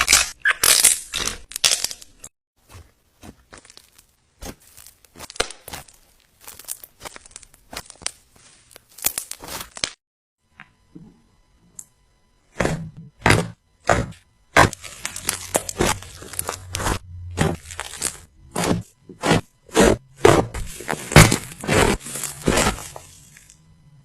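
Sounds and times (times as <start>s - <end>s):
slime squeezed crackling: 14.6s - 19.4s.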